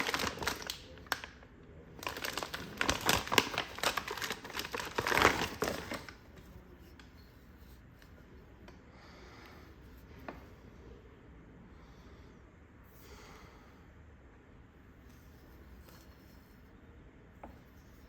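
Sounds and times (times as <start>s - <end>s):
packaging crinkling: 0.0s - 1.4s, 2.0s - 6.2s.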